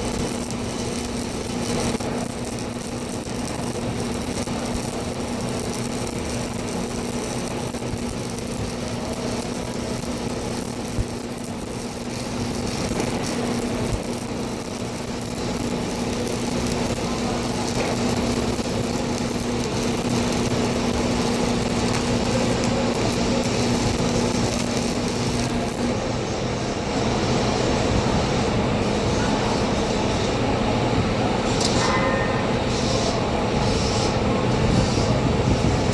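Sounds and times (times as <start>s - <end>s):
welding hiss: 0.0s - 26.1s
welding equipment humming: 0.0s - 35.9s.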